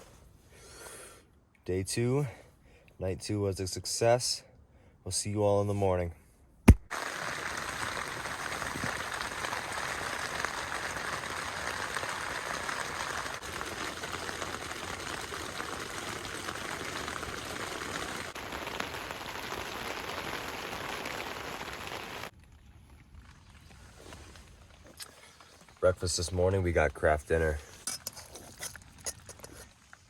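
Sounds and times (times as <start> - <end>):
steady rain falling: 6.9 - 22.3.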